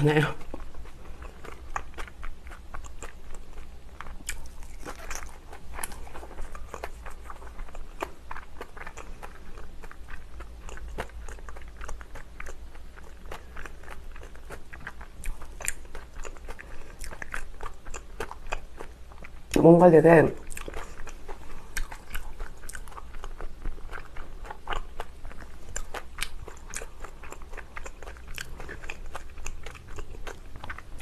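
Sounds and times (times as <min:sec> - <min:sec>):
faint low hum: 0:00.0 - 0:31.0
chewing with wet mouth clicks: 0:00.4 - 0:19.6, 0:20.4 - 0:31.0.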